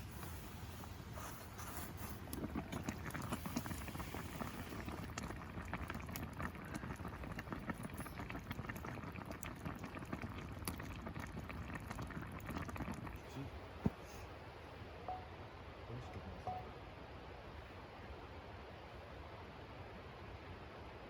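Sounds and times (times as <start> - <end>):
food simmering in a pot: 0.0 - 14.4.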